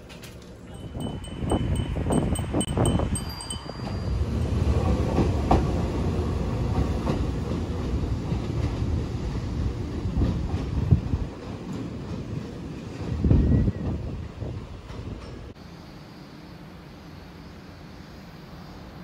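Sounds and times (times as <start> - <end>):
high repeating chime: 0.7 - 4.6
electric train pulling away: 0.7 - 8.2.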